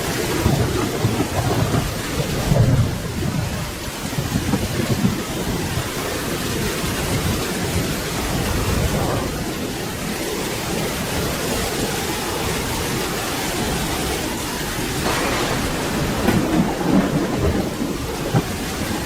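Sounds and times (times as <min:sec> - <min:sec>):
thunder rumbling: 0:00.0 - 0:05.9, 0:14.4 - 0:19.0
steady rain: 0:00.0 - 0:19.0.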